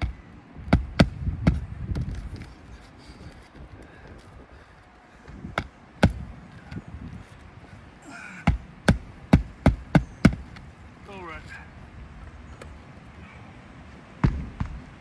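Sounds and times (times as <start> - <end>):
hammer striking roofing nails: 0.0 - 1.8, 5.4 - 6.4, 8.3 - 10.7, 14.2 - 14.8.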